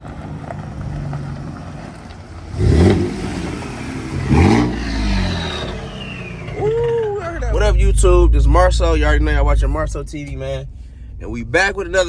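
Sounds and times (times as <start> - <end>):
truck engine idling and revving: 0.0 - 12.0
turbo whistle: 5.0 - 7.3.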